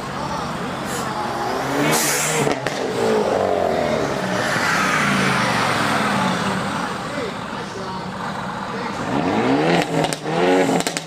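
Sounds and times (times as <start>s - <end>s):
sports car engine revving: 0.0s - 11.0s
exhaust pops: 1.9s - 3.2s, 9.0s - 11.0s.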